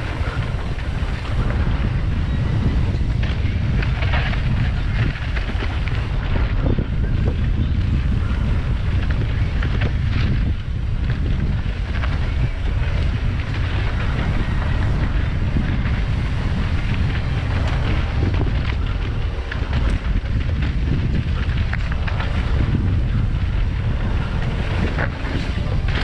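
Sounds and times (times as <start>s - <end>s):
bike rattles and clicks: 0.0s - 26.0s
bike tyre noise: 0.0s - 26.0s
wind buffeting microphone: 0.0s - 26.0s.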